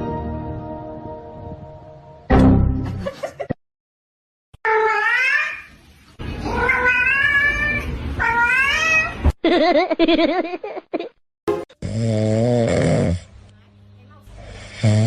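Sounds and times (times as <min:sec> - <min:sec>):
cat yowling: 0:04.7 - 0:05.7, 0:06.4 - 0:09.2.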